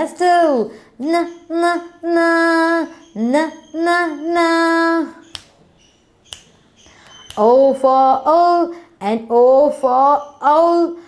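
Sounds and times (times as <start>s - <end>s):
woman and children singing: 0.0s - 5.3s, 7.3s - 11.0s
sharp click: 5.2s - 5.6s, 6.2s - 7.5s.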